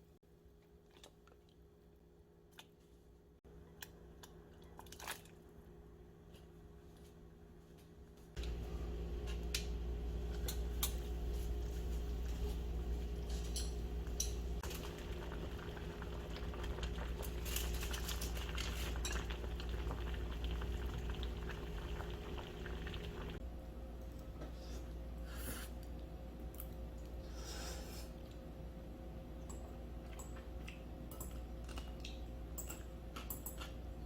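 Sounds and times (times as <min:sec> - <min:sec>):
utensils clinking on dishes: 0:13.2 - 0:14.4.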